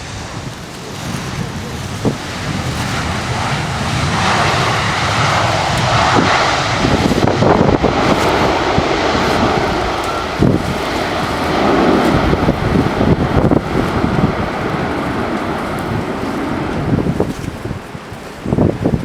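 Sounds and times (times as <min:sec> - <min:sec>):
airliner engines passing: 0:00.0 - 0:19.0
wind buffeting microphone: 0:00.0 - 0:19.0.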